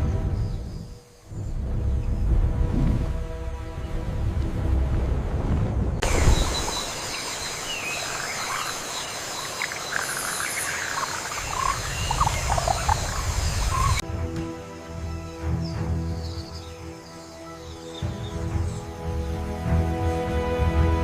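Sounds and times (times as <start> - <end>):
birds chirping and whistling: 6.0 - 14.0, 15.1 - 19.5
steady hiss and high tones: 6.0 - 14.0.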